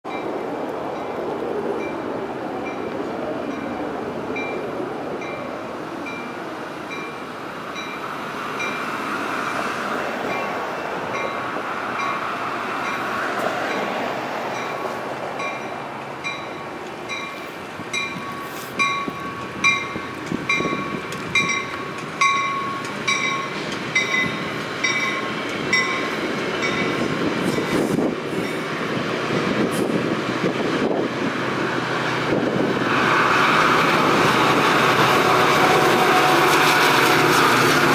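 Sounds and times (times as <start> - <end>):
diesel locomotive: 0.0 - 37.9
railroad crossing bell ringing: 0.1 - 1.2, 2.6 - 9.7, 10.3 - 28.7
train wheels rumbling: 0.1 - 37.9.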